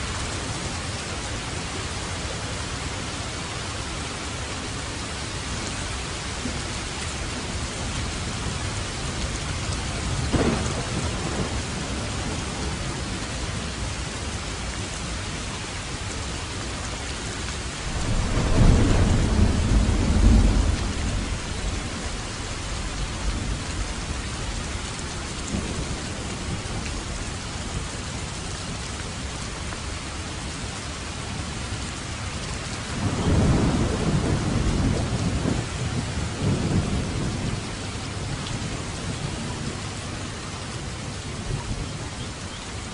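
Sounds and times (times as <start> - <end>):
steady rain falling: 0.0 - 42.9
low thunder rumble: 8.2 - 13.8, 17.8 - 27.8, 32.8 - 39.8
thunder crack: 10.3 - 12.4, 17.9 - 21.3.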